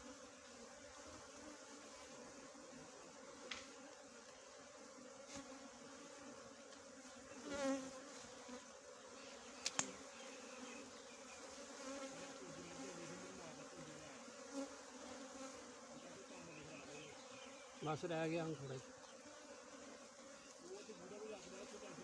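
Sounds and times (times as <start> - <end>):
bees buzzing: 0.0 - 22.0
sharp click: 9.6 - 10.0.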